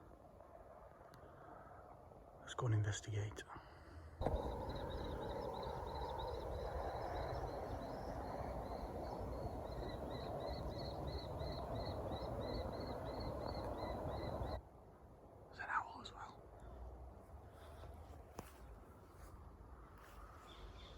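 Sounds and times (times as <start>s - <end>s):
steady rushing noise: 4.2s - 14.6s
young kestrels calling: 4.2s - 14.6s.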